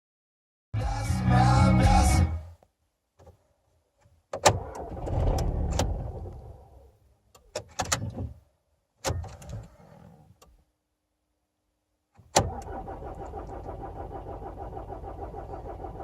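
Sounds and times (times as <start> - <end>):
diesel engine cranking: 4.5 - 6.5, 12.4 - 16.0.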